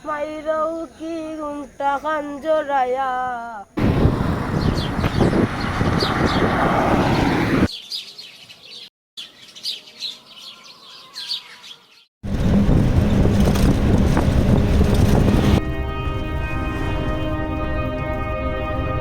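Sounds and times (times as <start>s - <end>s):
loud rushing noise: 3.8s - 7.7s
small birds chirping: 3.9s - 6.7s, 7.7s - 12.1s.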